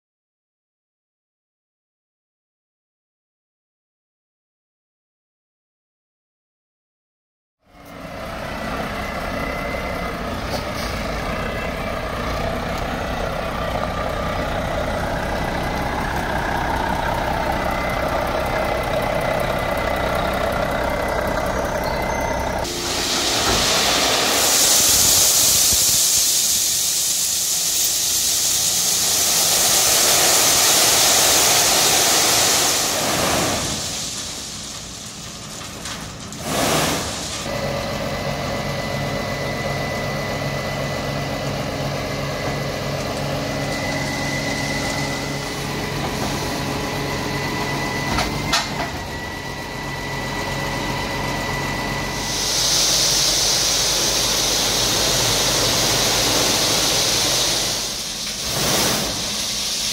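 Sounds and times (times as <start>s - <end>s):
diesel engine running: 7.6s - 59.9s
gravel pouring out: 22.6s - 37.5s, 51.8s - 59.9s.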